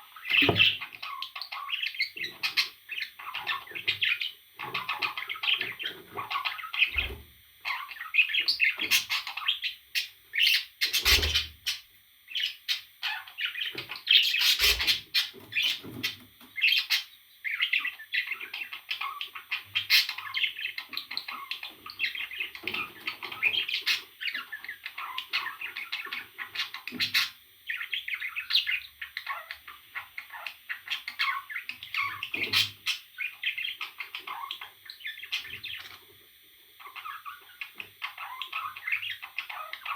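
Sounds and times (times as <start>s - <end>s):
parrot chirping and chattering: 0.1s - 36.1s, 36.8s - 39.9s
sharp knocks: 0.4s - 0.7s.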